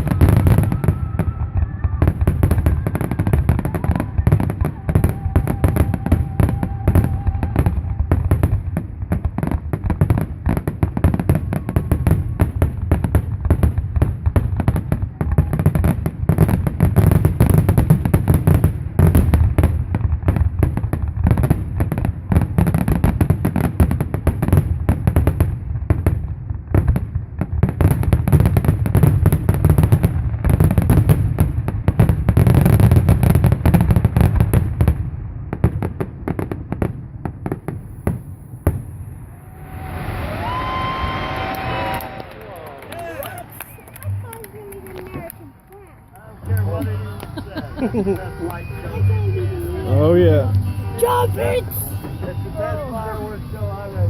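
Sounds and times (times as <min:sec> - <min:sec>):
fireworks bangs and crackles: 0:00.0 - 0:54.0
low rumble: 0:37.9 - 0:43.9.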